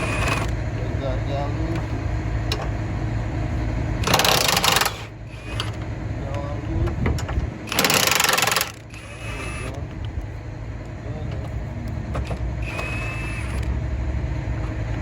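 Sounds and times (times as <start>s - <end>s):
power tool loosening bolts: 0.0s - 0.6s, 4.0s - 10.0s, 12.1s - 13.7s.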